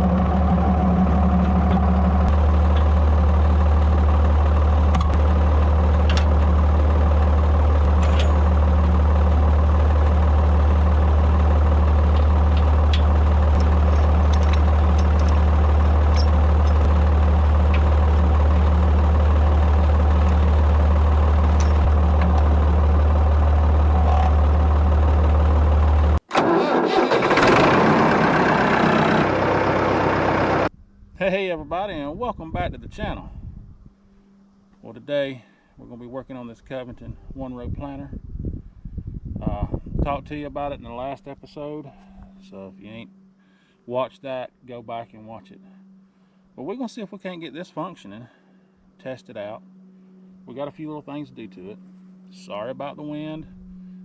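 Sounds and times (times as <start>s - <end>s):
tractor engine idling: 0.0s - 30.7s.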